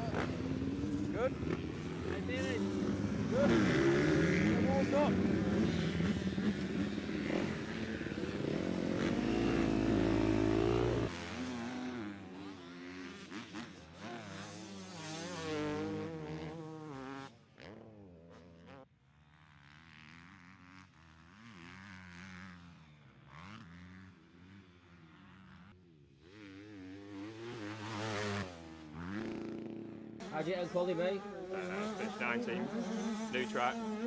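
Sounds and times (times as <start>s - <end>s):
motocross bike engines revving: 0.0s - 18.0s, 26.2s - 34.0s.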